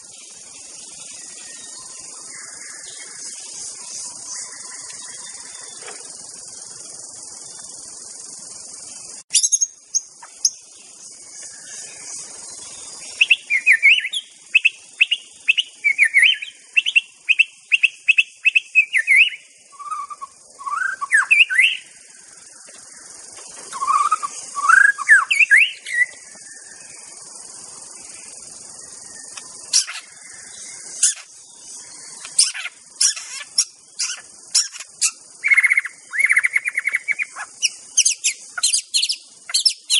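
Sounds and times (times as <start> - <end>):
bird singing: 0.0 - 39.9
steady high hiss: 0.0 - 39.9
sharp clicking bird notes: 29.3 - 30.0, 32.2 - 33.4.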